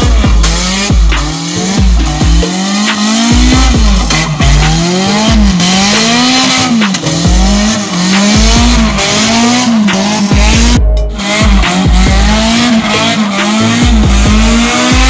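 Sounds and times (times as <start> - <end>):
car engine revving hard: 0.0 - 15.0
deep low thumps: 3.3 - 5.9, 7.1 - 9.0, 10.3 - 12.7.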